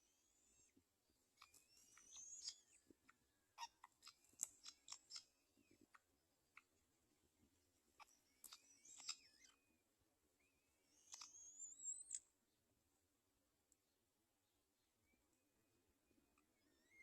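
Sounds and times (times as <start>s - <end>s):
sharp bird chips: 1.4s - 2.8s, 8.3s - 9.5s.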